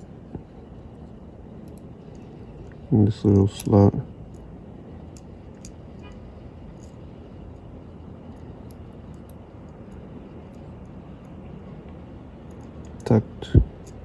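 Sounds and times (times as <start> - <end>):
low background noise: 0.0 - 14.0
tweezers clicking on watch parts: 5.1 - 6.1, 6.7 - 7.7, 8.3 - 11.4, 12.4 - 13.1, 13.8 - 14.0.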